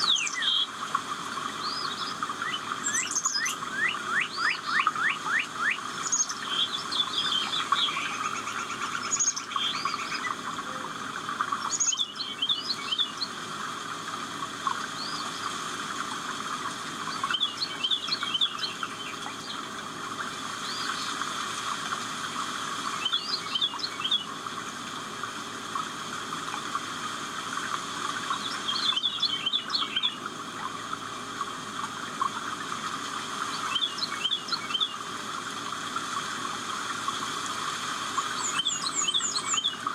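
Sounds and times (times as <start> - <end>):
birds chirping and singing: 0.0 - 0.8, 1.5 - 13.4, 17.1 - 19.7, 28.3 - 30.2, 33.6 - 35.0, 38.2 - 39.9.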